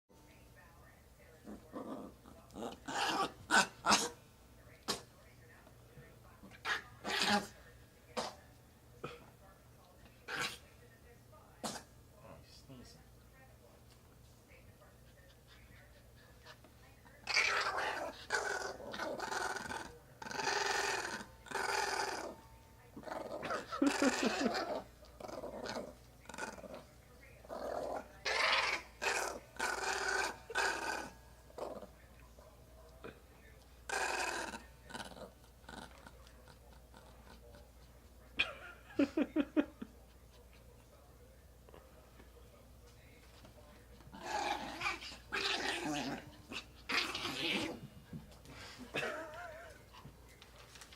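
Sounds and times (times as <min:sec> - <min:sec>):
small dog growling: 0:01.4 - 0:04.2, 0:17.2 - 0:22.4, 0:23.0 - 0:32.0, 0:33.9 - 0:37.5, 0:44.1 - 0:47.9.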